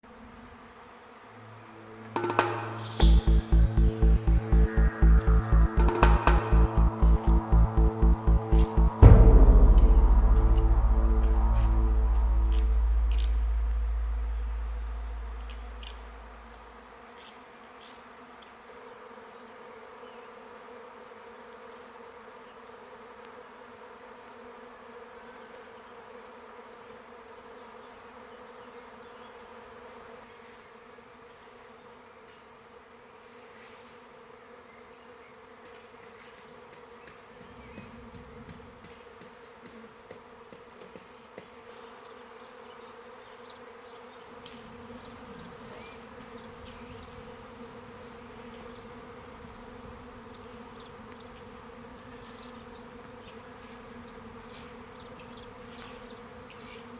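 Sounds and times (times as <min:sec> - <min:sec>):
swarm of bees buzzing: 0:11.8 - 0:56.9.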